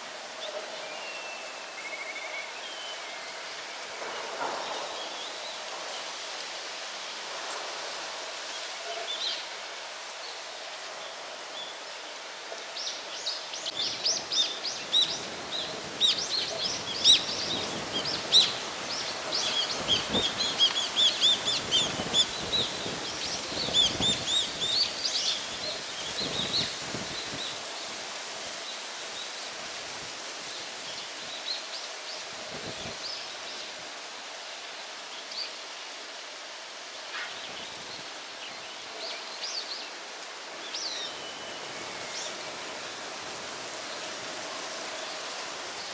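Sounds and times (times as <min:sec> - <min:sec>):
steady outdoor hiss: 0:00.0 - 0:45.9
small birds chirping: 0:13.6 - 0:27.6
wind buffeting microphone: 0:13.7 - 0:28.3.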